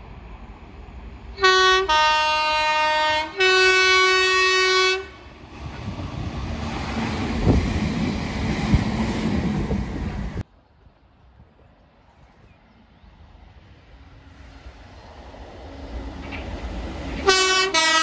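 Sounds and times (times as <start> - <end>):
rumble of wheels on rail: 0.0 - 18.0
two-tone train horn: 1.4 - 5.3, 17.2 - 18.0.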